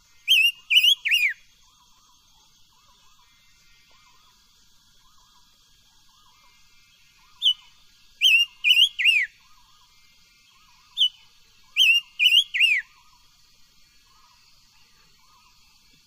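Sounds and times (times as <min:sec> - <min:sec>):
cage bird whistling: 0:00.2 - 0:01.4, 0:08.2 - 0:09.3, 0:11.8 - 0:12.9.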